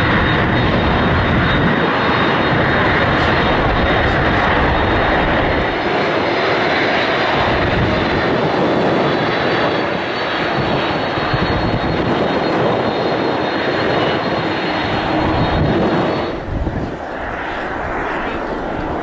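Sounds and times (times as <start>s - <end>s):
airliner engines at takeoff: 0.0s - 19.0s.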